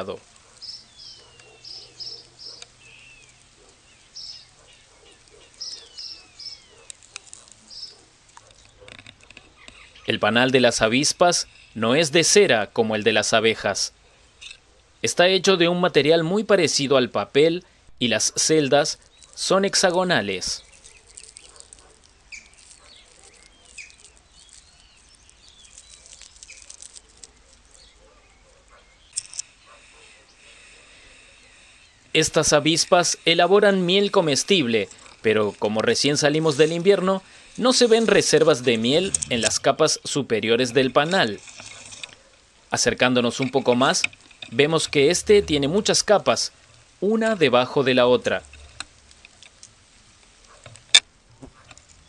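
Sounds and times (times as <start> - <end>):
birds chirping: 0.0 - 15.1, 18.0 - 48.9
bird chirps: 0.5 - 10.2
light crackling clicks: 48.4 - 52.0.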